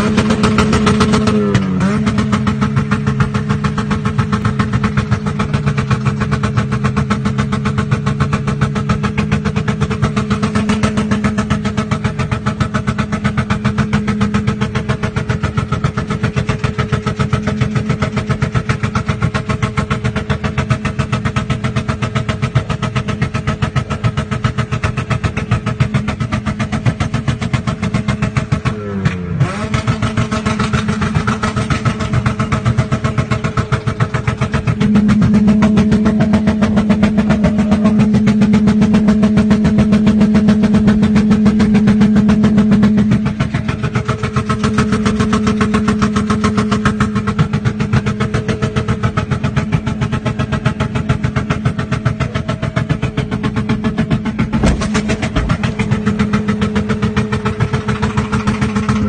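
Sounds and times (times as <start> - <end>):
car engine running loud: 0.0 - 59.0
fast pulsing exhaust: 0.0 - 59.0.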